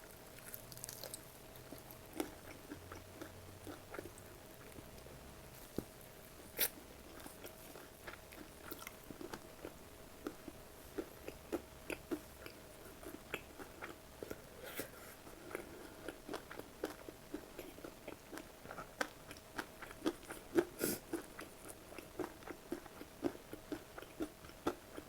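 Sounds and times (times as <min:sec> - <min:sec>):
crunchy chewing: 0:00.3 - 0:05.9.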